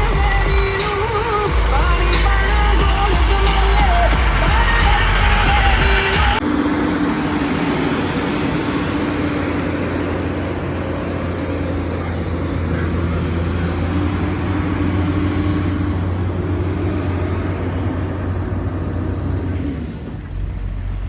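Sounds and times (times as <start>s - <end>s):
tractor diesel engine droning: 0.0s - 21.0s.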